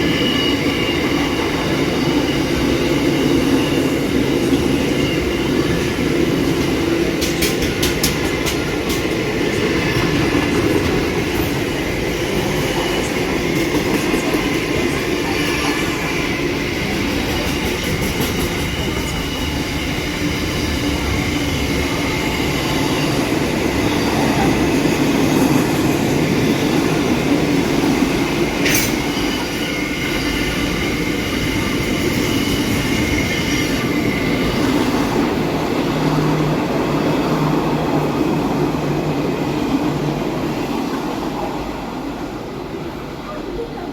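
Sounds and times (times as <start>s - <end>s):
train wheels squealing: 0.0s - 6.7s, 28.5s - 35.2s
train wheels rumbling on rail: 0.0s - 43.9s.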